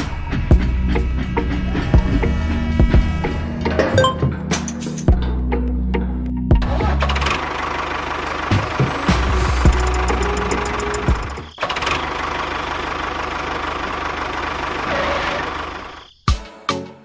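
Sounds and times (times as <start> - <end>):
music: 0.0 - 7.5, 8.4 - 11.6, 16.1 - 17.0
small engine running: 7.1 - 16.0.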